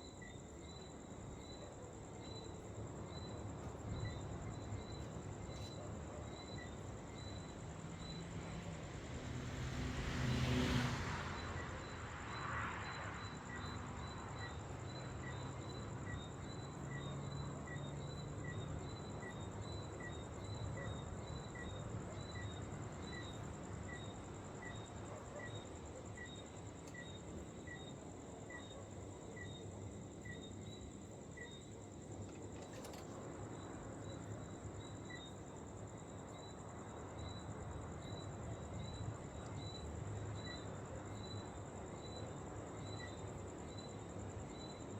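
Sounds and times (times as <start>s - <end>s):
insect chirping: 0.0s - 8.7s, 11.3s - 44.9s.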